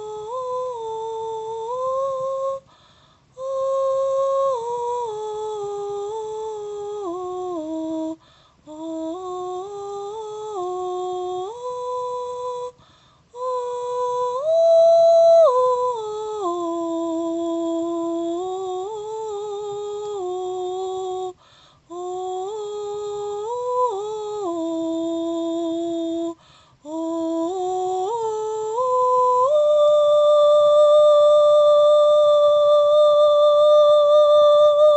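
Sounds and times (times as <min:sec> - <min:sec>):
high voice humming a melody: 0:00.0 - 0:02.7, 0:03.3 - 0:34.9
breaths: 0:02.6 - 0:03.4, 0:08.2 - 0:08.7, 0:12.8 - 0:13.4, 0:21.4 - 0:21.9, 0:26.4 - 0:26.9.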